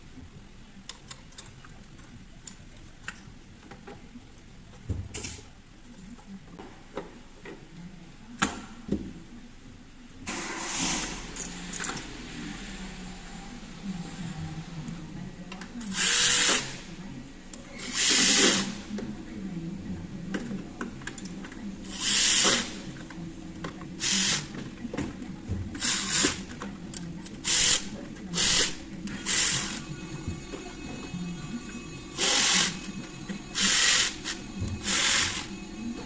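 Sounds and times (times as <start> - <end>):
power tool bursts: 10.3 - 11.6, 32.2 - 32.8, 33.6 - 35.5
steady low hum: 18.6 - 36.0.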